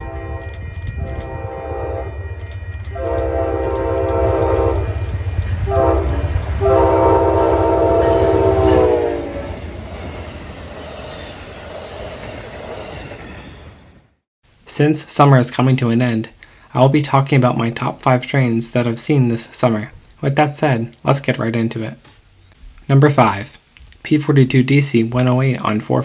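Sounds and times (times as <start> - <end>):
train horn blasts: 0.0 - 9.7
passing train rumble: 0.0 - 14.2.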